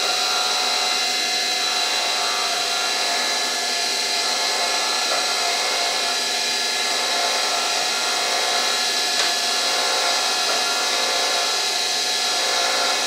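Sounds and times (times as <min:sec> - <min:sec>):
milling machine spindle whine: 0:00.0 - 0:13.0.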